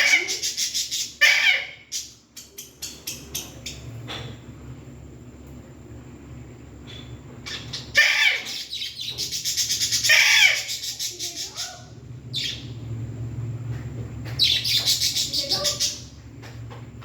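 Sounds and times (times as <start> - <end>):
parrot screeching: 0.0 - 2.1, 7.5 - 12.7.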